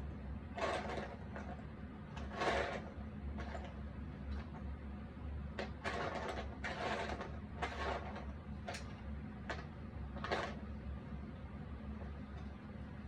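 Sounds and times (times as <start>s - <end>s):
steady low hum: 0.0s - 13.0s
puzzle pieces scraping on table: 0.6s - 1.6s, 2.2s - 3.8s, 5.6s - 8.8s, 10.2s - 10.6s.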